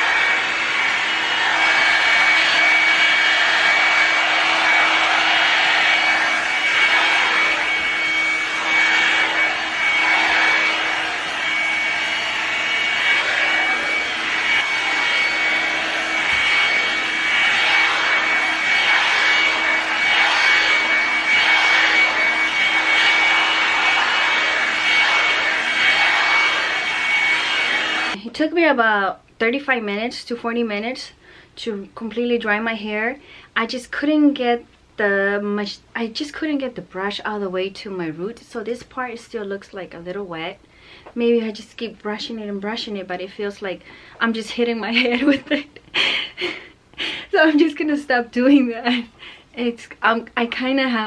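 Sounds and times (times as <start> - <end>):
hair dryer fan blowing: 0.0 - 28.2, 41.5 - 47.9
thin high whine: 0.0 - 28.2.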